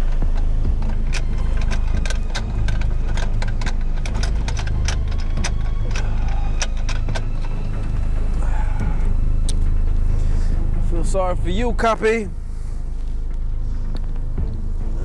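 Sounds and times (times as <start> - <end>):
sharp metallic clicks: 0.0 - 8.0
vehicle engine idling: 0.0 - 15.0.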